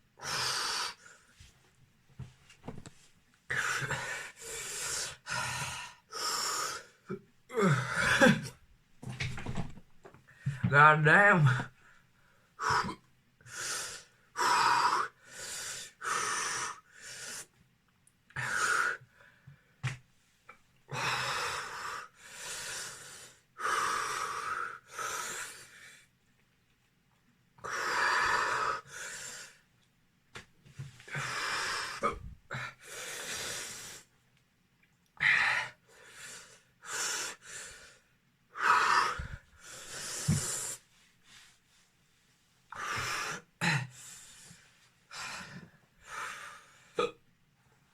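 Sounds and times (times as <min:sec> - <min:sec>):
man breathing hard and wheezing: 0:03.5 - 0:08.5.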